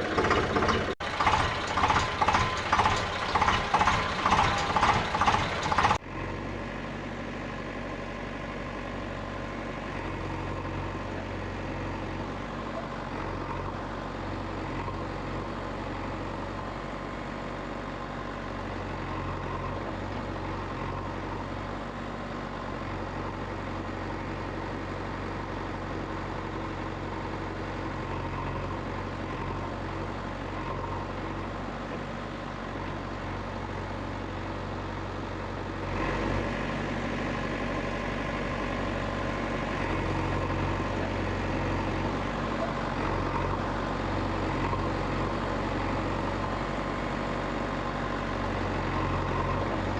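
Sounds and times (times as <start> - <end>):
engine idling: 0.0 - 49.9.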